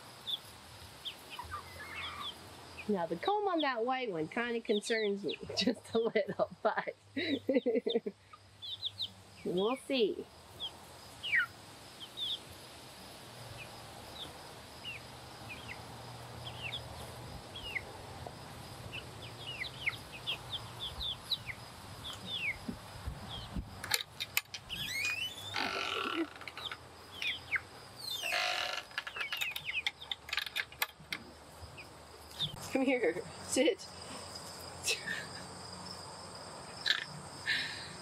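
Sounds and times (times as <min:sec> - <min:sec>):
birds chirping: 0:00.0 - 0:12.5, 0:13.4 - 0:38.0
harsh bird calls: 0:01.0 - 0:02.9, 0:10.6 - 0:12.5, 0:18.9 - 0:23.6, 0:24.2 - 0:30.7.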